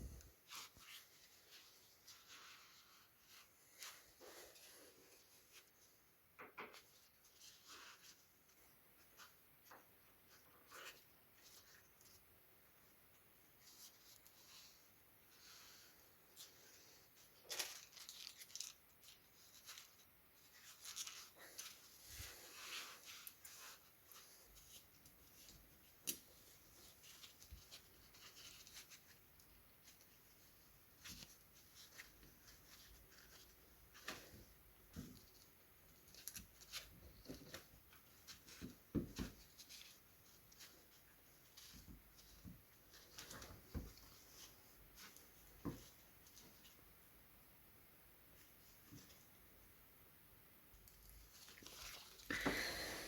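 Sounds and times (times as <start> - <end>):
faint scratching and rubbing: 0.0 - 6.0, 6.7 - 9.4, 13.6 - 46.8.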